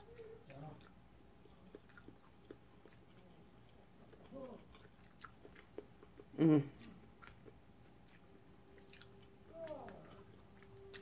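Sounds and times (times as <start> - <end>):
woman chewing food: 0.0 - 11.0
woman humming mm: 6.3 - 6.9.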